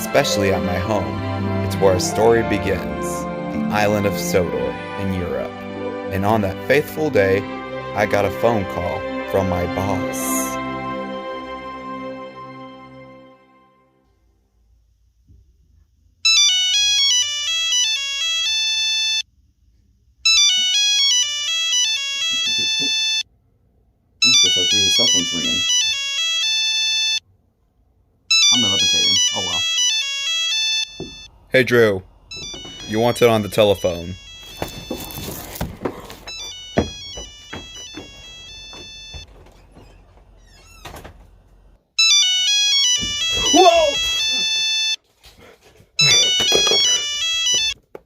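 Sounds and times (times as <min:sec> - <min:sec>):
cell phone ringtone: 0:16.2 - 0:19.2, 0:20.3 - 0:23.3, 0:24.2 - 0:27.2, 0:28.3 - 0:31.3, 0:32.3 - 0:39.3, 0:42.0 - 0:45.0, 0:46.0 - 0:47.8
knocks: 0:30.9 - 0:31.3, 0:32.3 - 0:32.9, 0:34.5 - 0:41.3, 0:43.0 - 0:43.6, 0:46.0 - 0:48.0.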